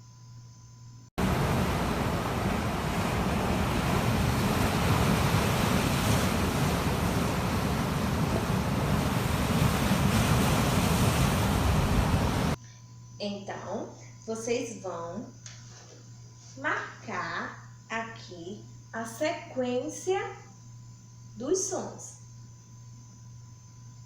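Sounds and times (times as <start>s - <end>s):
rushing water: 1.2s - 12.6s.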